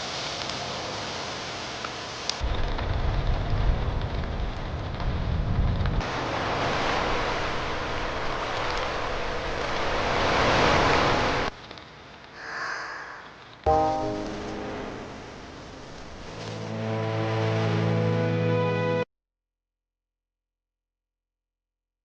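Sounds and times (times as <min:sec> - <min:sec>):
surf washing: 0:06.0 - 0:11.5
music: 0:13.7 - 0:15.2, 0:16.3 - 0:19.1.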